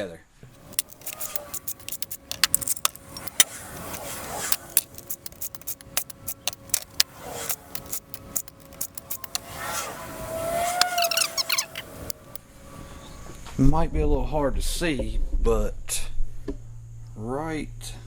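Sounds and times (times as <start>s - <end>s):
metal tools clinking and rattling: 0.6s - 12.5s.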